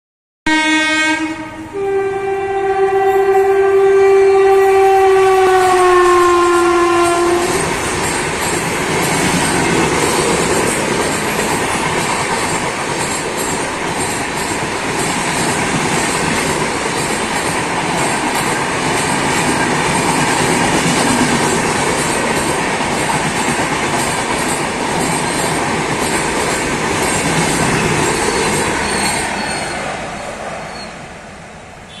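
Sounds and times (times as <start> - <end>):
locomotive horn: 0.5 - 7.7
train wheels clickety-clack on rails: 5.6 - 31.0.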